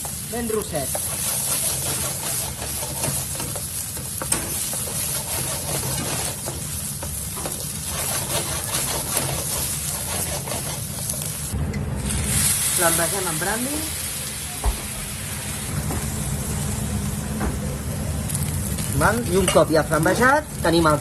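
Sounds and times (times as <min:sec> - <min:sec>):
stirring and scraping a pan: 0:00.0 - 0:11.4
rice sizzling in hot oil: 0:00.0 - 0:17.2, 0:17.9 - 0:21.0.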